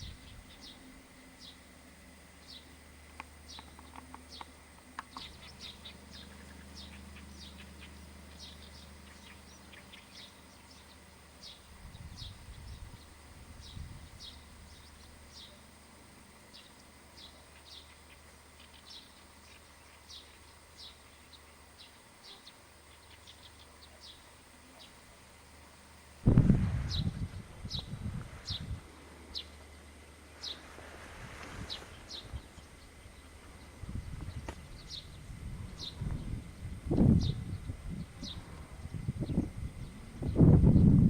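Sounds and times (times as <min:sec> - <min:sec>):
faint bird chirps: 0:00.0 - 0:25.6
low rumble: 0:26.2 - 0:29.0.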